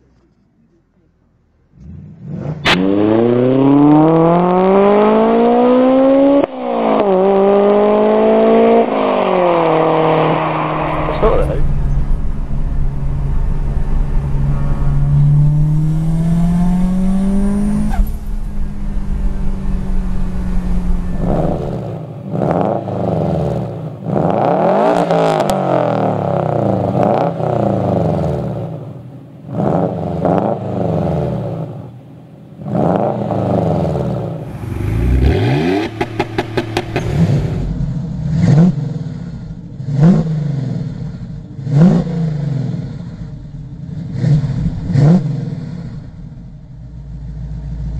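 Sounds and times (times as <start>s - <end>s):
car engine revving hard: 1.7s - 18.4s, 19.4s - 28.8s, 29.5s - 31.8s, 32.6s - 46.7s
exhaust pops: 34.4s - 40.3s.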